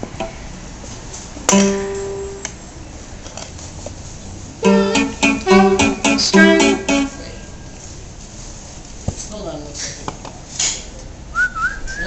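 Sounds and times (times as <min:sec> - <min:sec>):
guitar chords strummed: 0:01.5 - 0:02.5, 0:04.6 - 0:07.4.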